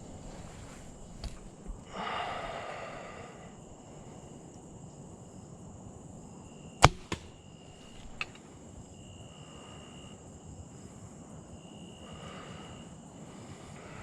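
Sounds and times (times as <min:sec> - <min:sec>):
bow firing crack: 0:06.8 - 0:08.4
smaller crack: 0:06.8 - 0:08.4.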